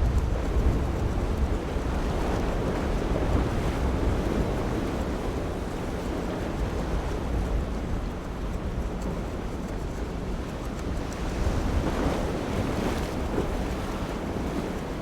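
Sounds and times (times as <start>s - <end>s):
waves and surf: 0.0s - 15.0s
wind buffeting microphone: 0.0s - 15.0s.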